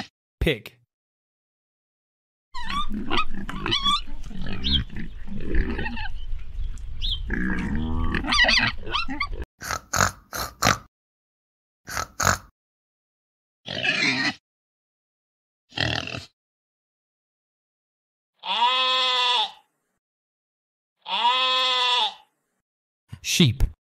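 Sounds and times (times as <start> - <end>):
pig oinks: 2.6 - 6.1, 7.3 - 10.9, 11.9 - 12.5, 13.7 - 14.4, 15.7 - 16.4, 18.4 - 19.6, 21.0 - 22.2
pigs grunting and squealing: 2.6 - 6.3, 7.2 - 10.9, 11.9 - 12.5, 13.7 - 14.4, 15.7 - 16.4, 18.4 - 19.6, 21.0 - 22.2.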